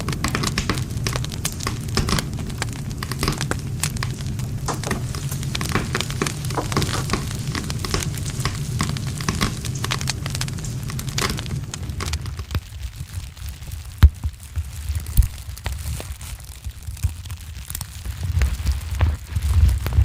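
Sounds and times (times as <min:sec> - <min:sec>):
campfire crackling and popping: 0:00.0 - 0:20.0
low rumble of flames: 0:00.0 - 0:20.0.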